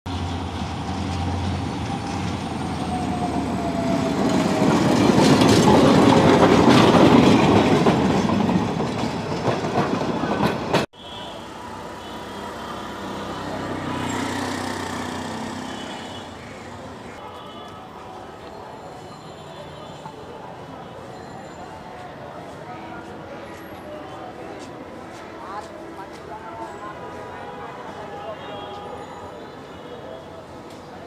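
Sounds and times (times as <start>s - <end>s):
diesel locomotive passing: 0.1s - 17.0s
street ambience: 0.1s - 31.0s
wheels clicking over rail joints: 4.2s - 10.9s.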